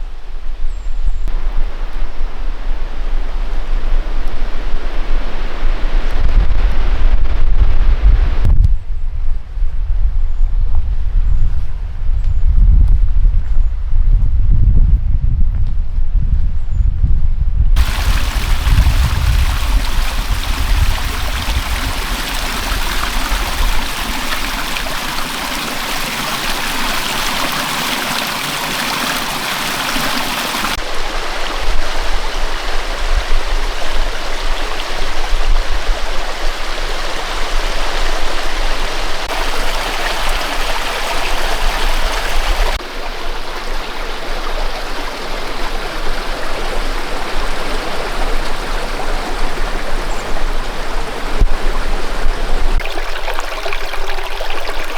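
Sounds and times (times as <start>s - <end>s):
rushing water: 17.8s - 54.9s.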